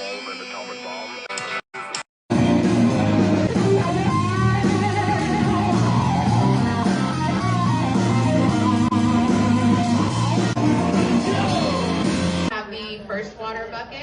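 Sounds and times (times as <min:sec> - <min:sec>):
rock music on guitars: 0:02.3 - 0:12.5.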